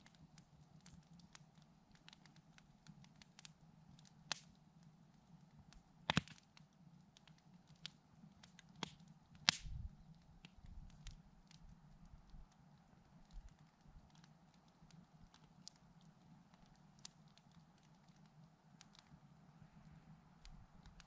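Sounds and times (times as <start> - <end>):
campfire crackling: 0.0 - 21.0
burning wood pops: 0.8 - 4.6, 6.1 - 12.4.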